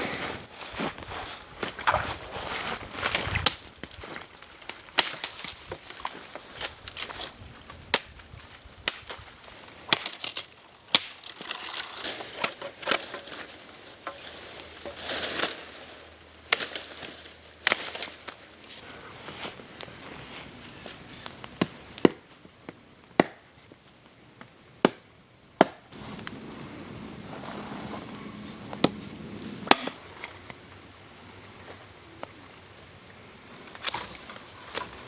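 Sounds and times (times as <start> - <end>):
handling noises: 0.0 - 21.6
metal pieces clinking: 6.6 - 9.6, 10.9 - 14.3, 17.6 - 18.8.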